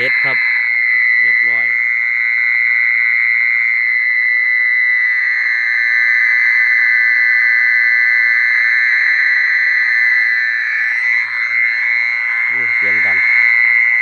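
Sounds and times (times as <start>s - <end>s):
mole cricket call from loudspeaker: 0.0s - 0.4s, 1.0s - 1.8s, 12.4s - 14.0s.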